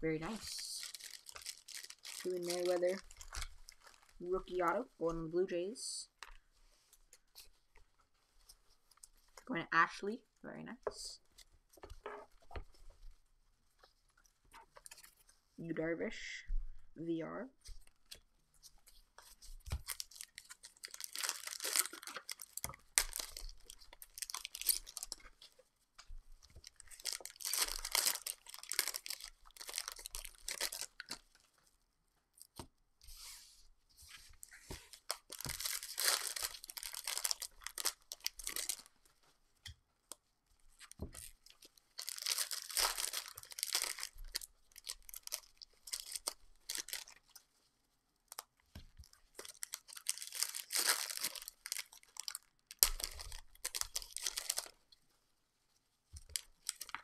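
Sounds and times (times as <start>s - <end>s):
wrappers torn and crinkled: 0.0s - 4.8s, 19.3s - 25.6s, 26.4s - 31.4s, 34.8s - 39.0s, 40.7s - 47.4s, 48.3s - 54.8s, 56.2s - 57.0s.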